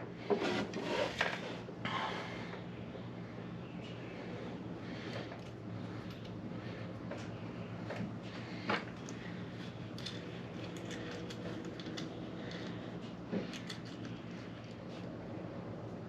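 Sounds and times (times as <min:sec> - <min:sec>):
steady background hum: 0:00.0 - 0:16.0
metal parts clicking and clinking: 0:09.9 - 0:12.8, 0:13.5 - 0:14.8.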